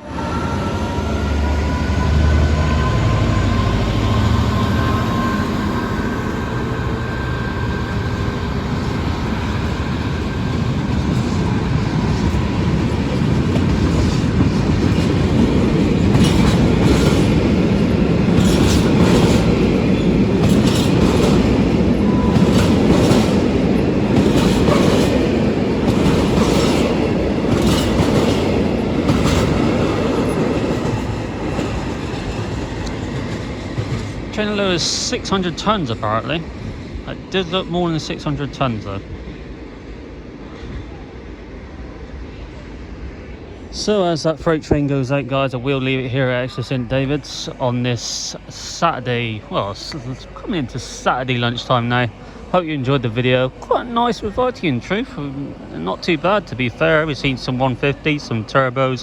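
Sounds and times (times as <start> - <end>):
diesel locomotive rumble: 0.0 - 59.0
wheels clicking over rail joints: 12.2 - 34.4.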